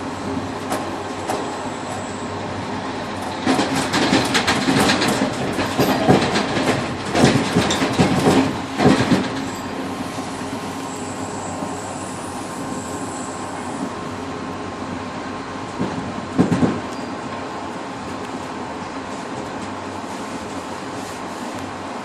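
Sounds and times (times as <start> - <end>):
train rolling rumble: 0.0 - 22.0
train wheels clattering: 3.1 - 10.9, 15.7 - 17.5.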